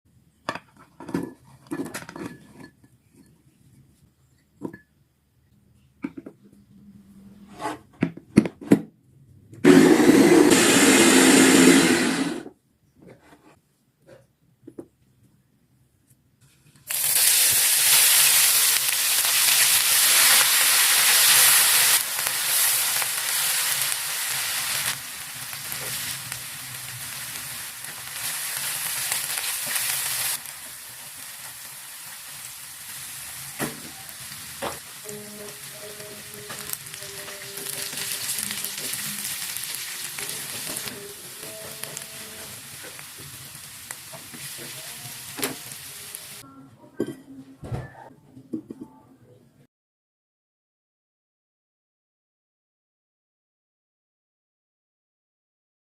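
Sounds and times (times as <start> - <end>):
food sizzling in hot oil: 16.9 - 46.4.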